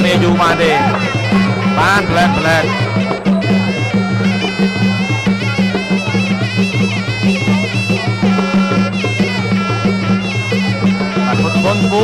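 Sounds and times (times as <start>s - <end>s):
low pulsing drum beat: 0.0s - 12.0s
reed oboe melody: 0.0s - 12.0s.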